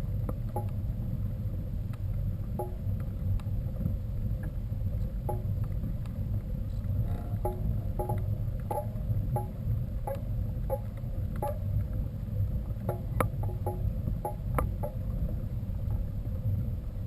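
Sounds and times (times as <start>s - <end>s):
wind and rolling noise: 0.0s - 17.0s
bike clicks: 5.3s - 12.0s
bike metallic rattles: 7.0s - 11.8s, 12.8s - 15.1s.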